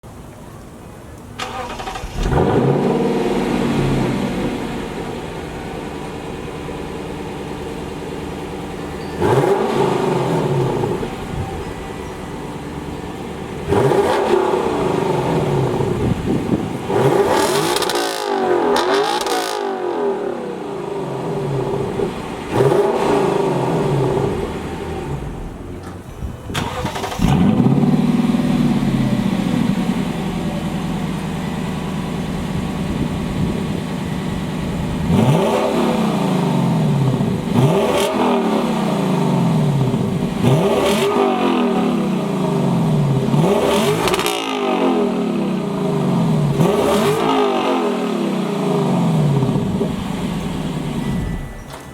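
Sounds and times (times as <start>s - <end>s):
car engine idling: 0.0s - 51.9s
engine throttle blips: 0.7s - 51.9s.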